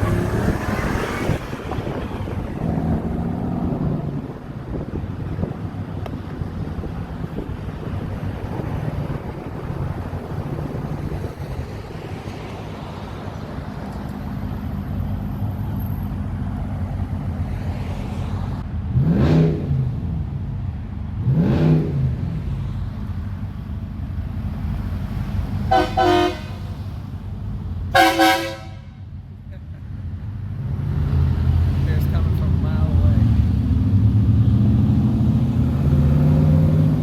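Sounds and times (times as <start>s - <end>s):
car engine and road noise: 0.0s - 37.0s
car horn: 25.7s - 26.8s, 27.9s - 29.1s.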